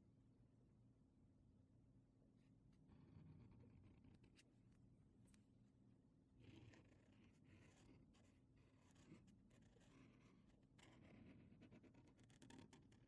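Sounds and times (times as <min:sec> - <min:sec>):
drawing tool scratching paper: 0:06.4 - 0:13.0.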